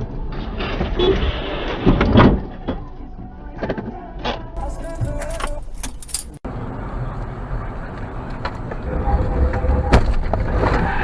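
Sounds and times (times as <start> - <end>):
car engine and road rumble: 2.7 - 11.0.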